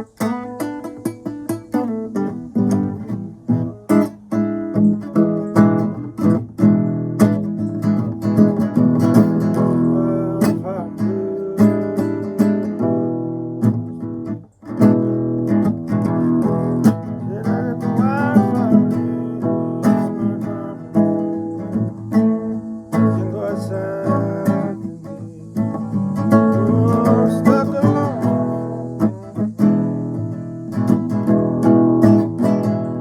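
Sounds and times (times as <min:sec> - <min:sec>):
acoustic guitar playing blues: 0:00.0 - 0:33.0.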